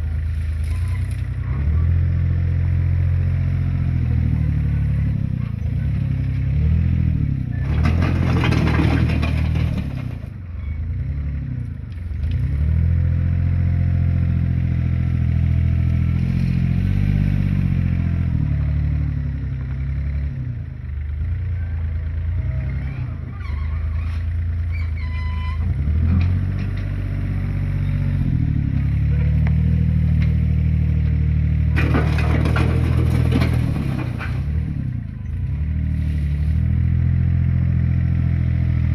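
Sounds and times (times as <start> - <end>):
diesel engines revving: 0.0 - 38.9
machinery clatter: 7.6 - 10.3, 31.7 - 34.7.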